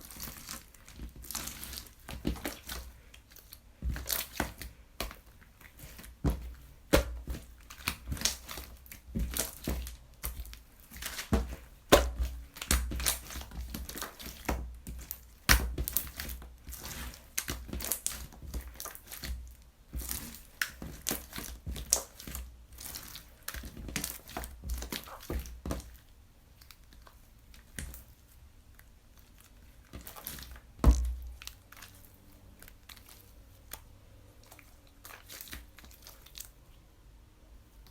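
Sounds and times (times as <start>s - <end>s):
slime crackling and popping: 0.0s - 28.1s.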